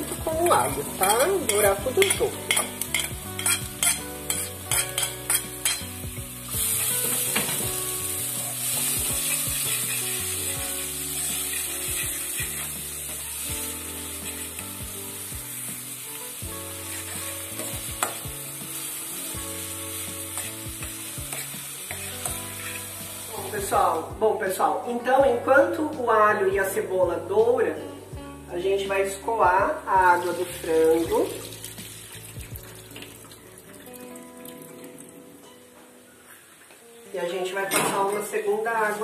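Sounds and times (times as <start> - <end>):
onion and garlic frying in oil: 0.0 - 24.2, 29.5 - 35.6
spoon scraping a pot: 0.9 - 5.9.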